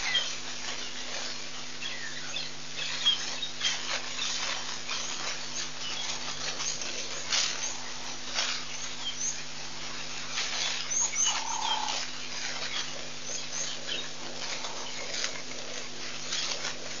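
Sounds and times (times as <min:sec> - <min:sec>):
small birds chirping: 0:00.0 - 0:17.0
rustling noise: 0:02.6 - 0:17.0.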